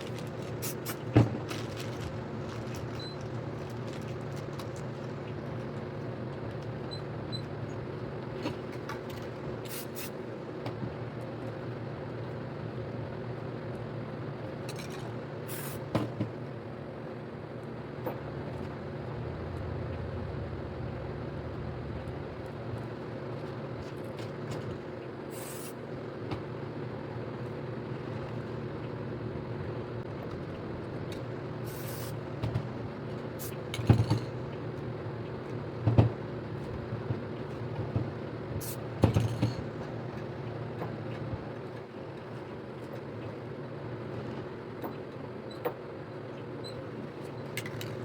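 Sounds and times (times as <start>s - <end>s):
steady low hum: 17.0s - 24.9s
spray paint can hissing: 31.7s - 32.1s.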